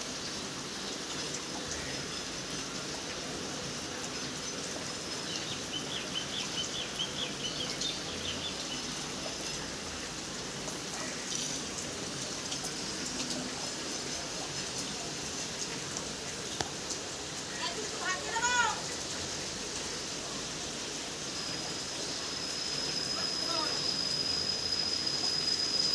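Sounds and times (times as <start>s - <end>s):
steady rain falling: 0.0s - 25.9s
bird chirping: 5.3s - 8.9s.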